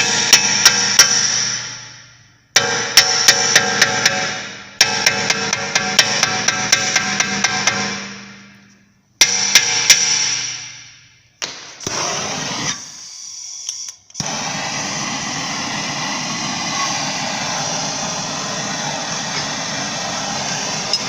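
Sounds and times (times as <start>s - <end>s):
sharp metallic knocks: 2.6s - 8.6s, 9.2s - 11.6s
blowtorch flame hissing: 11.8s - 13.4s, 14.2s - 21.0s.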